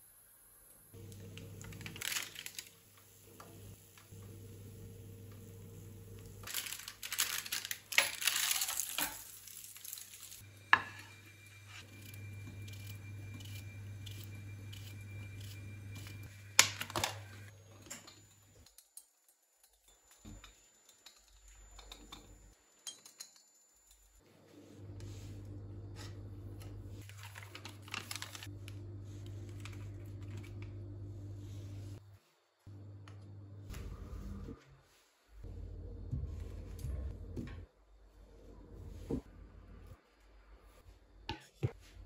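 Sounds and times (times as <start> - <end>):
low steady hum: 24.2 - 40.0.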